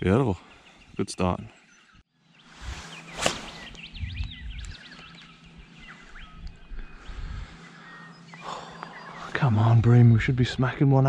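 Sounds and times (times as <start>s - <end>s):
birds singing: 0.0s - 11.0s.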